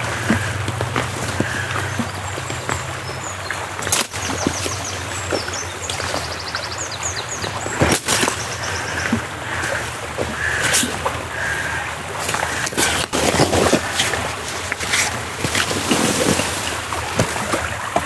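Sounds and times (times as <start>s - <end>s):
water washing: 0.0s - 18.0s
small birds chirping: 1.3s - 15.0s.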